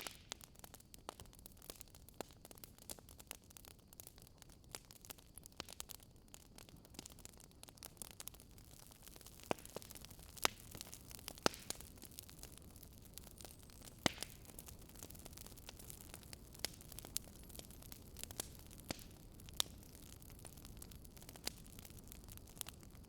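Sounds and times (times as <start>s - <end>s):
faint steady hiss: 0.0s - 23.0s
wood fire crackling and popping: 0.0s - 23.0s.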